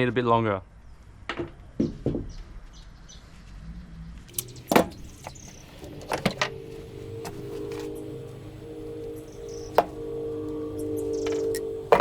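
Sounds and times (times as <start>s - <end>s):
steady hum: 4.3s - 12.0s
hard objects knocking: 11.3s - 12.0s.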